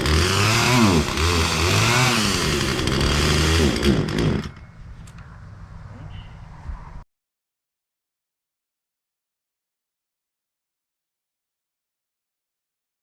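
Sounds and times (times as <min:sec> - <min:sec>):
chainsaw revving: 0:00.0 - 0:04.6.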